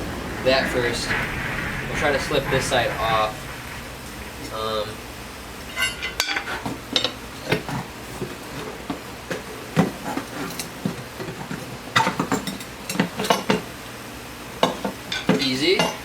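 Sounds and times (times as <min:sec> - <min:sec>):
rubber tire rubbing scrapes: 0:00.0 - 0:10.6
tire clinking on metal rim: 0:00.0 - 0:16.0.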